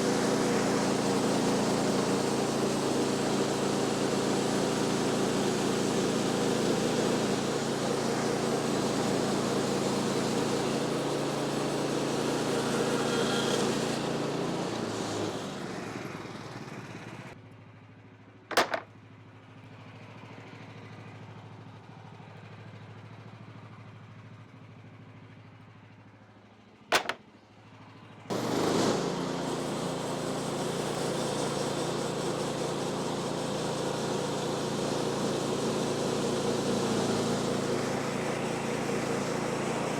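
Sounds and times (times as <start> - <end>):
gas engine running: 0.0 - 17.3, 28.3 - 39.9
sharp knocks: 18.5 - 18.9, 26.9 - 27.2.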